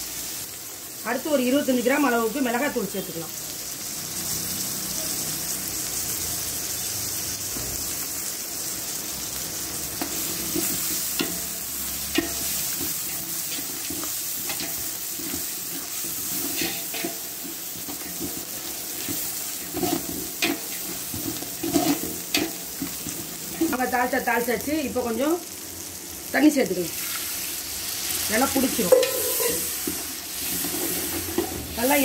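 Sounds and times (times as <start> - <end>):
food sizzling in oil: 0.0 - 32.0
ladle scraping and knocking pot: 17.8 - 23.7, 28.9 - 31.6.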